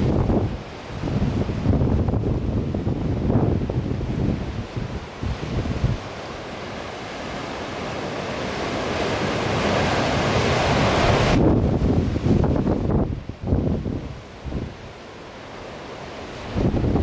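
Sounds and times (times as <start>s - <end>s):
wind buffeting microphone: 0.0s - 6.1s, 10.0s - 14.8s, 16.5s - 17.0s
rough sea surf rushing: 0.0s - 17.0s.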